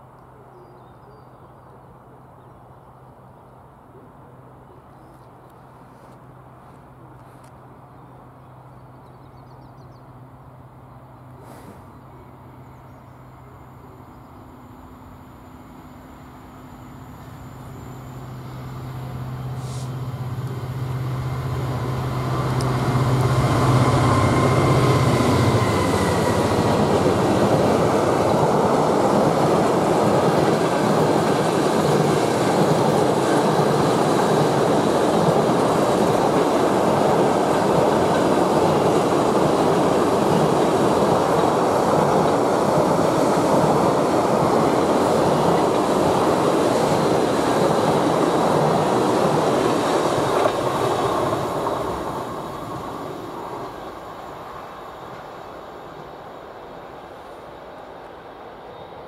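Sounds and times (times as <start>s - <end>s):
diesel locomotive engine drone: 1.4s - 59.0s
train wheels on rails: 11.4s - 12.0s, 15.6s - 59.0s.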